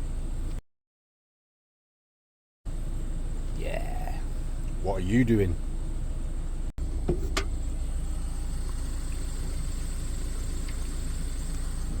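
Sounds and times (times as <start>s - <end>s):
engine idling: 2.7s - 12.0s.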